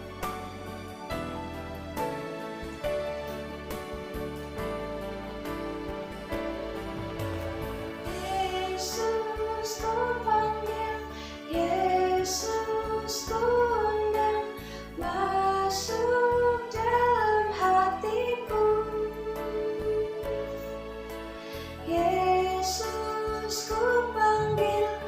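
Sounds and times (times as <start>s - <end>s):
instrumental accompaniment: 0.0s - 15.4s, 19.0s - 25.0s
woman singing: 8.1s - 20.6s, 21.8s - 25.0s.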